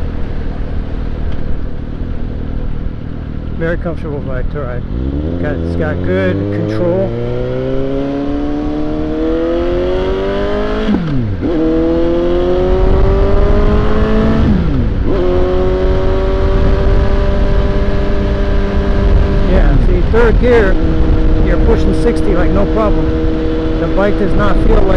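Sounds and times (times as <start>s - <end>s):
motorcycle engine accelerating: 0.0s - 24.9s
wind noise: 6.4s - 24.9s.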